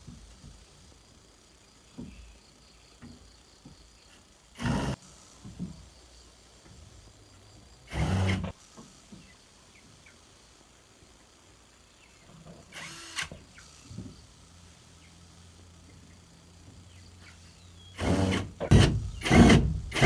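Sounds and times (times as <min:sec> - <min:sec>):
power drill bursts: 0:04.6 - 0:05.0, 0:07.9 - 0:08.6, 0:12.7 - 0:13.9, 0:18.0 - 0:20.0.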